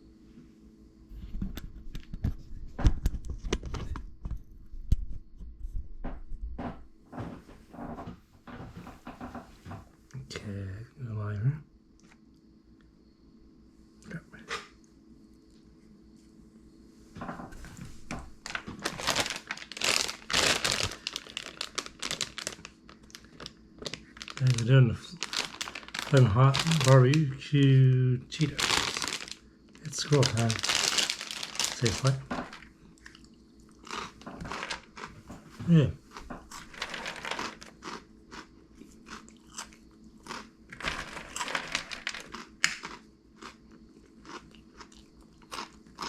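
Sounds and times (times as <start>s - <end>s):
plastic snack bag crinkling: 18.4s - 35.1s, 36.4s - 38.4s, 39.1s - 43.6s.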